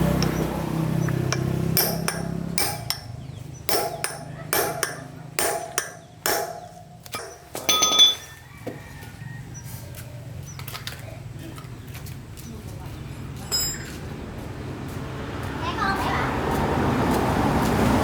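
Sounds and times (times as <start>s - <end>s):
hammer striking metal: 0.2s - 8.3s.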